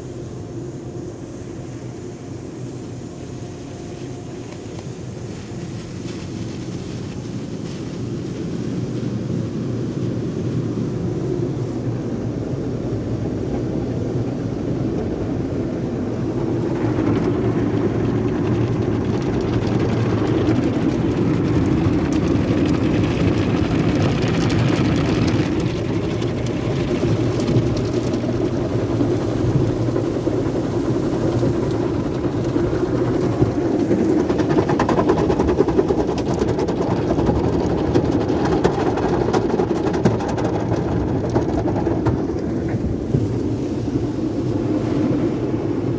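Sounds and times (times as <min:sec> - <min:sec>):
hiss: 0:00.0 - 0:17.9
car wash equipment rumbling: 0:00.0 - 0:45.9.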